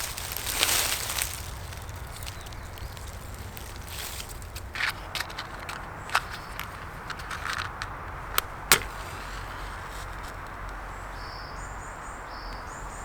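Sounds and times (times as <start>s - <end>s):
sharp snaps and knocks: 2.2s - 10.8s.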